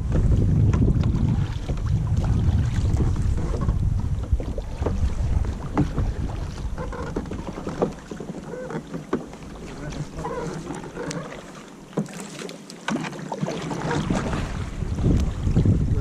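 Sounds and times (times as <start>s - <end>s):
wind buffeting microphone: 0.0s - 8.2s, 13.8s - 16.0s
kayak paddles splashing: 0.0s - 16.0s.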